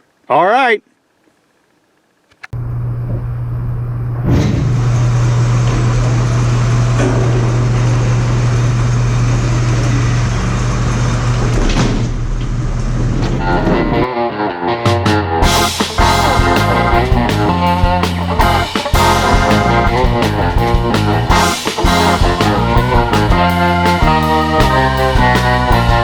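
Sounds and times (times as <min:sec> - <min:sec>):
diesel engine running: 0:02.6 - 0:11.6, 0:15.4 - 0:26.0.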